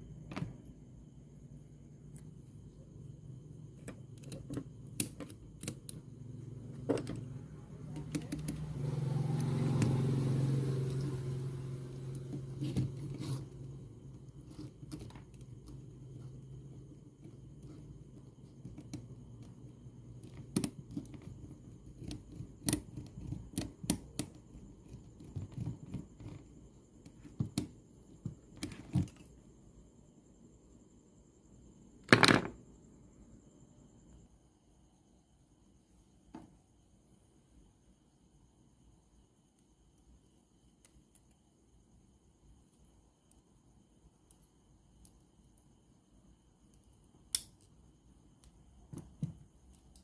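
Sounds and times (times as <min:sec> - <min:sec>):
small parts and tools clicking: 0:03.8 - 0:06.1, 0:12.1 - 0:29.4, 0:48.4 - 0:50.0.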